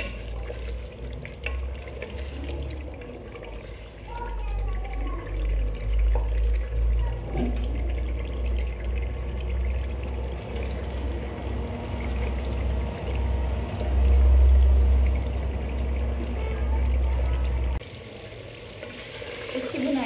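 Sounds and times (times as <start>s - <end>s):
wooden spoon stirring: 0.0s - 6.7s
meat sizzling in oil: 0.0s - 15.7s, 17.8s - 20.0s.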